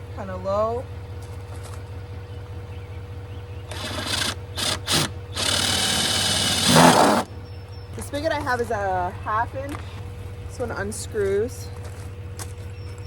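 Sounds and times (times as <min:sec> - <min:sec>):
cordless drill boring plastic: 0:03.7 - 0:07.3.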